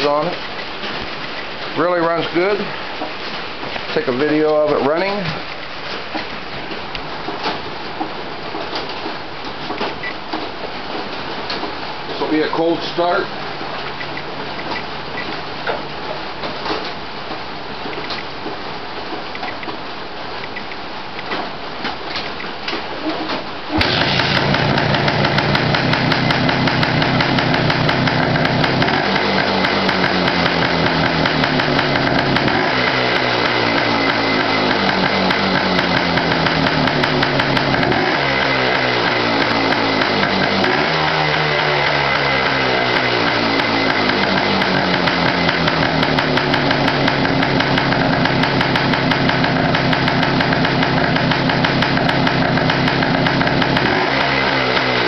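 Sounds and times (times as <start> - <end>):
two-stroke motorcycle engine revving: 23.8 - 55.0.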